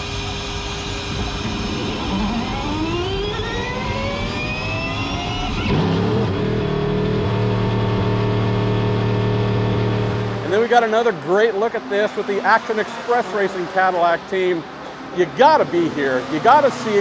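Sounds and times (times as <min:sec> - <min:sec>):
electric motor whine: 0:00.0 - 0:08.1
car engine running: 0:00.0 - 0:11.0.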